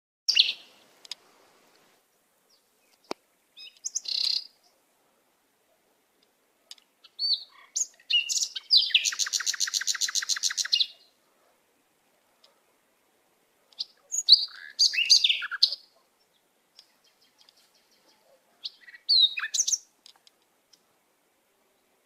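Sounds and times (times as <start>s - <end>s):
bird chirping: 0.3s - 1.0s, 2.0s - 4.9s, 6.6s - 11.2s, 13.6s - 20.9s
rapid bird trill: 7.0s - 11.1s, 13.8s - 15.9s, 16.9s - 19.9s.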